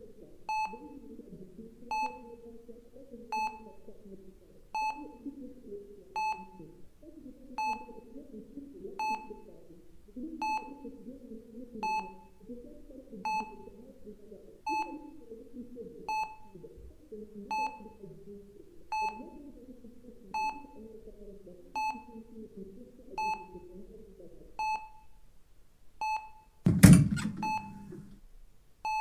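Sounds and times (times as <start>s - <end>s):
patient monitor beeping: 26.7s - 28.1s.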